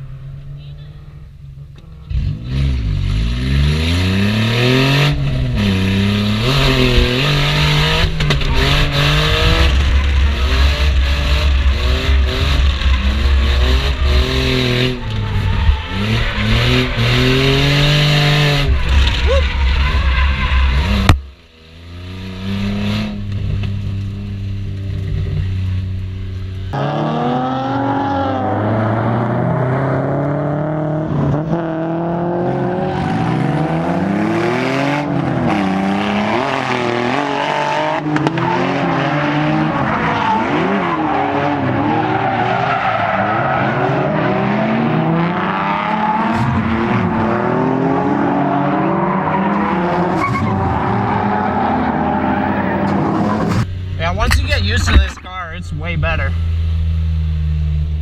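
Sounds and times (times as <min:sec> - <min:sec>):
car engine revving: 0:01.2 - 0:58.0
tyres squealing: 0:48.9 - 0:55.0.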